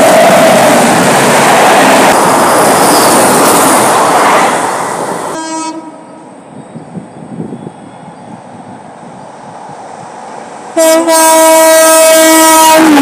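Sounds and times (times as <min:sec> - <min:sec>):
train coaches rushing past: 0:00.0 - 0:13.0
locomotive horn blast: 0:05.3 - 0:06.2, 0:10.8 - 0:13.0.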